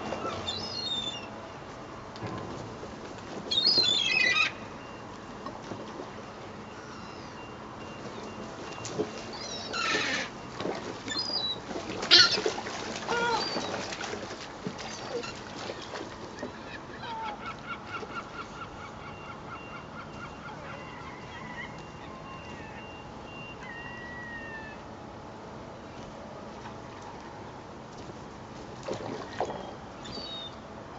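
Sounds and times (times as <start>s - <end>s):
seagulls calling: 0.0s - 1.3s, 3.5s - 5.0s, 8.2s - 14.1s, 14.8s - 24.9s, 29.6s - 30.6s.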